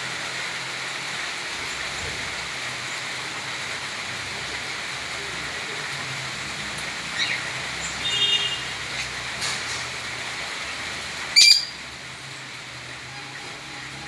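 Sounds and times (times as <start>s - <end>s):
rain hiss: 0.0s - 14.0s
bird chirps: 11.4s - 11.7s.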